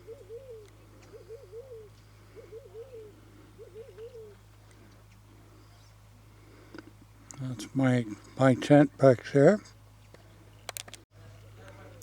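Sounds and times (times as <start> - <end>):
dove cooing: 0.0 - 6.9.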